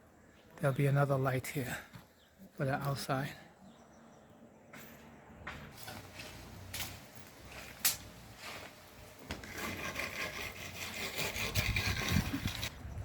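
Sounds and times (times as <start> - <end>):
scraping rasping noise: 9.3 - 12.7.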